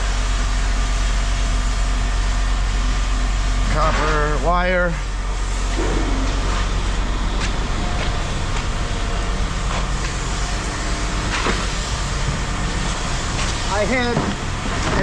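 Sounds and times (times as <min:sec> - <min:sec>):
engine humming: 0:04.1 - 0:15.0.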